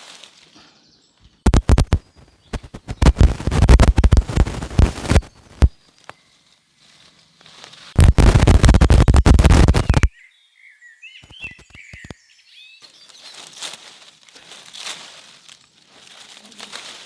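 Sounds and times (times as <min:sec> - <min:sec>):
small birds chirping: 0:00.6 - 0:06.3, 0:08.0 - 0:13.5
loud crackling rustling: 0:01.5 - 0:05.8, 0:07.9 - 0:10.1, 0:11.2 - 0:12.2
soft rustling: 0:01.5 - 0:05.8.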